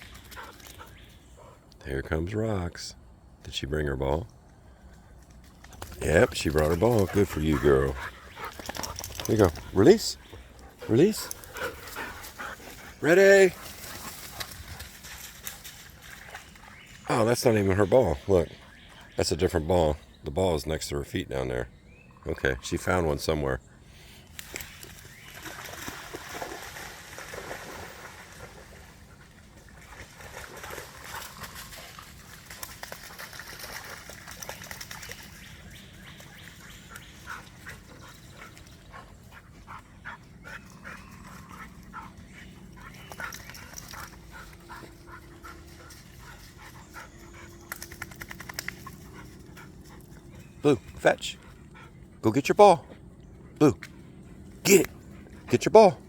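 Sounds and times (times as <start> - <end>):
dogs moving about: 5.2 - 16.7, 40.8 - 50.4.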